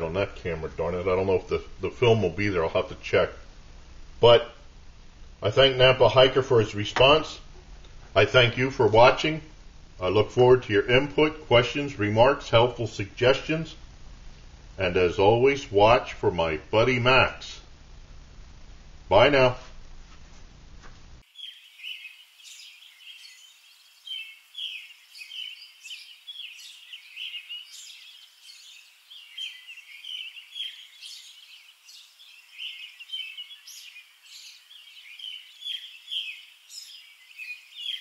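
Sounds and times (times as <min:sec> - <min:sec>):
songbirds chirping and singing: 0:21.3 - 0:38.0.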